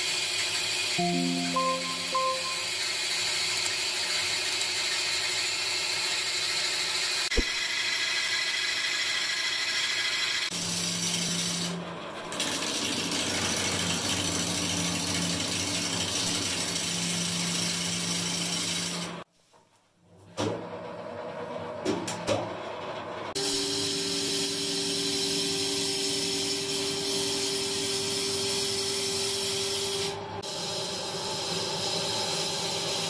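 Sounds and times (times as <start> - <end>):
sawmill machinery running: 0.3 - 19.2.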